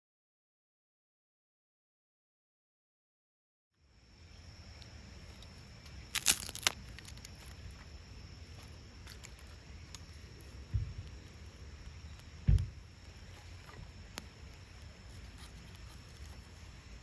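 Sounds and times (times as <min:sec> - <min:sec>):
low outdoor rumble: 0:03.8 - 0:17.0.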